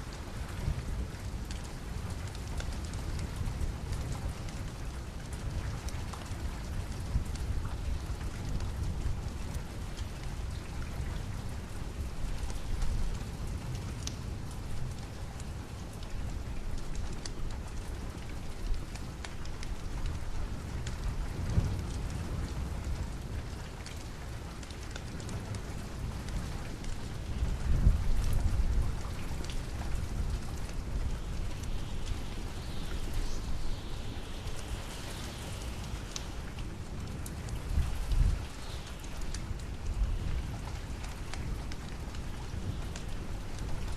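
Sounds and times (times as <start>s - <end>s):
wood fire crackling: 0.0s - 10.7s, 11.5s - 43.9s
steady rain: 0.0s - 43.9s.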